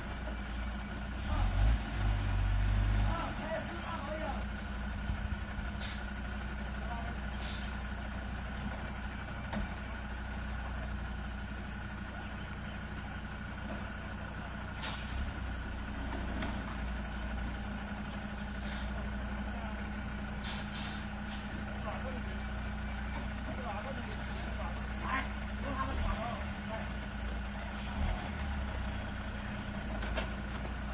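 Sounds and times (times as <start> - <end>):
diesel engine idling: 0.0 - 30.9
air hissing: 20.4 - 21.6.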